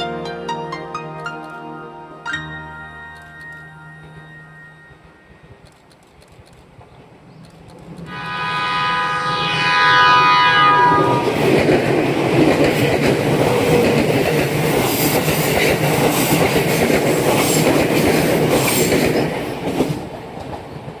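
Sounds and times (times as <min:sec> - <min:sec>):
train rumble: 0:04.0 - 0:21.0
train wheels clattering on rails: 0:11.4 - 0:21.0.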